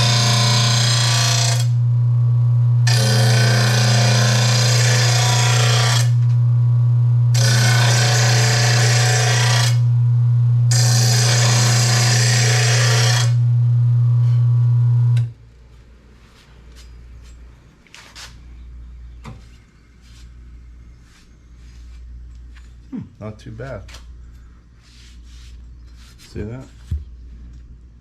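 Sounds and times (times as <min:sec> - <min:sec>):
blade grinding on sharpener: 0:00.0 - 0:01.8, 0:02.9 - 0:06.2, 0:07.4 - 0:09.9, 0:10.7 - 0:13.4
sharpener motor humming: 0:10.7 - 0:13.4.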